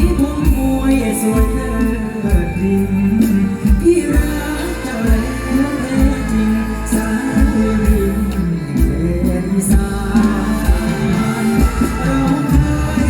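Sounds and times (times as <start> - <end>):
amplified band music: 0.0 - 13.0
person singing: 0.0 - 13.0.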